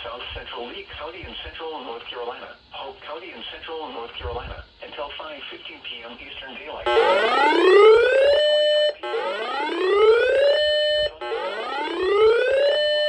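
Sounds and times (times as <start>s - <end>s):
electronic whooping alert tone: 6.9s - 13.0s
radio broadcast: 6.9s - 13.0s.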